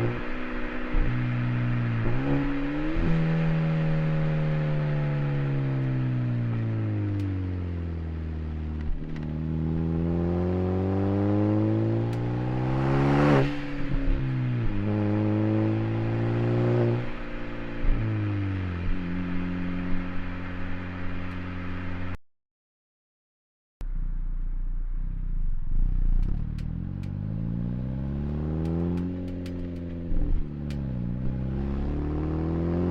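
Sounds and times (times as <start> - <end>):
car exhaust revving: 0.0 - 22.0
sharp clicks: 28.6 - 30.0.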